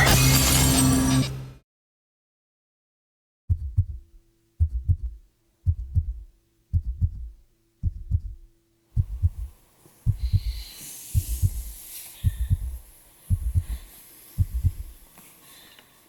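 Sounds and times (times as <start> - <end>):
heartbeat thumps: 3.5 - 15.0
faint steady hum: 3.5 - 16.0.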